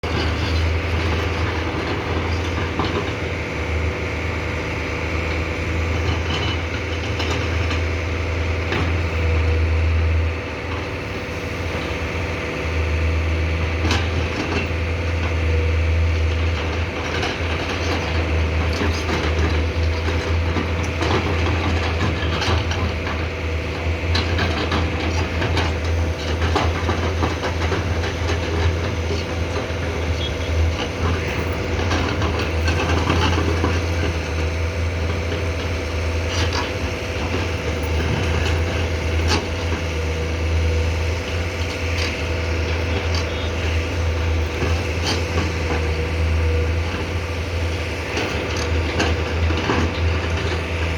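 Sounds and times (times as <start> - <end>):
excavator diesel engine running: 0.0 - 50.9
hydraulics working: 0.0 - 50.9.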